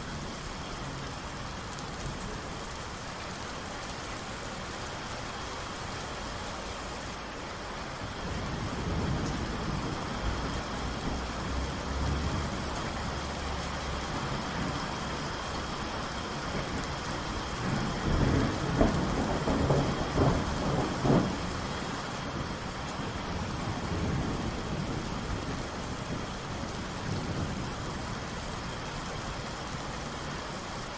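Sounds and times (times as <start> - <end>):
steady rain falling: 0.0 - 30.9
thunder rumbling and cracking: 16.4 - 27.8.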